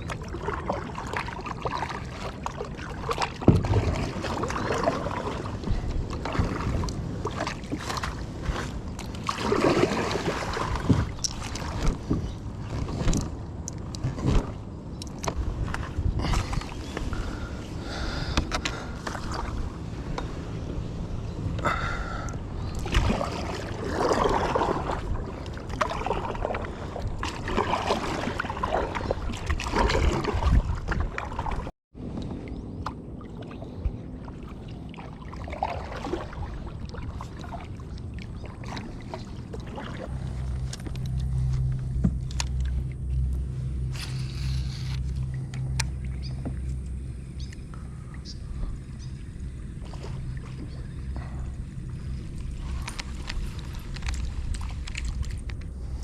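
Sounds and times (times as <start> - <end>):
low engine drone: 0.0 - 30.4, 32.0 - 56.0
water sloshing and splashing: 0.0 - 56.0.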